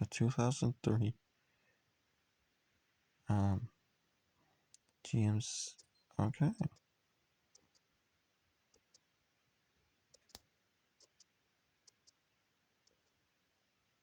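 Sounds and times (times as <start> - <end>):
computer mouse clicking: 7.5 - 7.9, 10.1 - 12.2.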